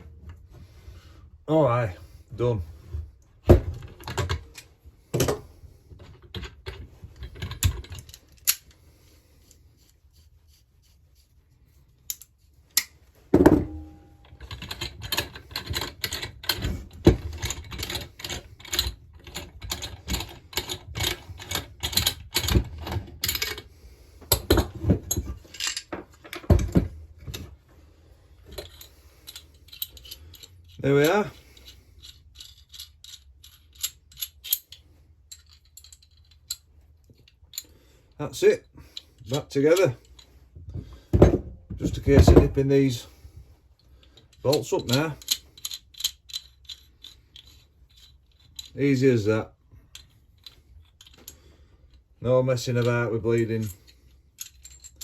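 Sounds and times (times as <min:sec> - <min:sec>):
metal tools clicking and clinking: 0:13.6 - 0:23.7, 0:24.3 - 0:27.5, 0:28.4 - 0:37.8, 0:43.8 - 0:55.0.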